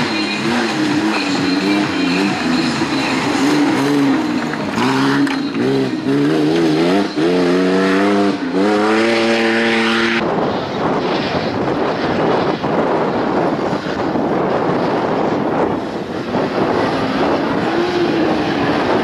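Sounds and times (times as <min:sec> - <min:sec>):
engine revving hard: 0:00.0 - 0:10.2.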